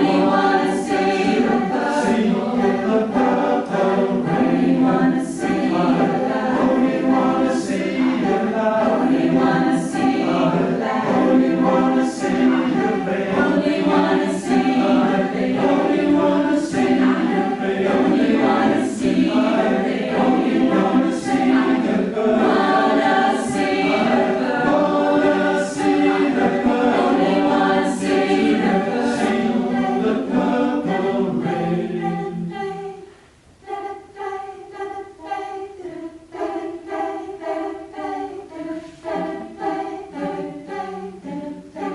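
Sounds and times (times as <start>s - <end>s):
choir singing: 0.0s - 41.9s.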